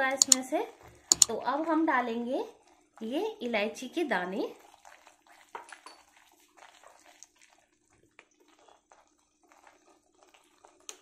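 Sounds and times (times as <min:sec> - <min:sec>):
ghee bubbling and popping: 0:00.0 - 0:01.8, 0:04.5 - 0:11.0.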